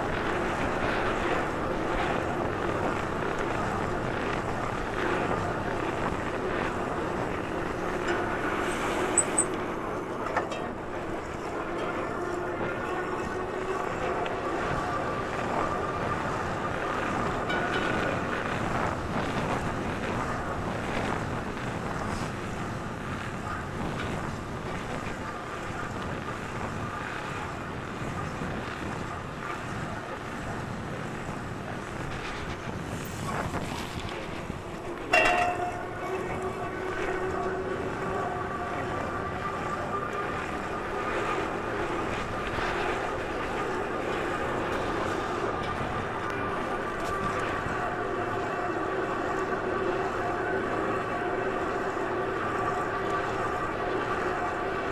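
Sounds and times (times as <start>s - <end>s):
wind on microphone: 14.6s - 54.8s.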